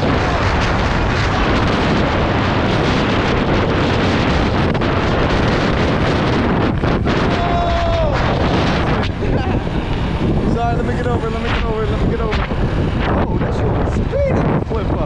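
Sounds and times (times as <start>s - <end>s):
dirt bike engine running: 0.0s - 14.9s
wind buffeting microphone: 0.0s - 15.0s.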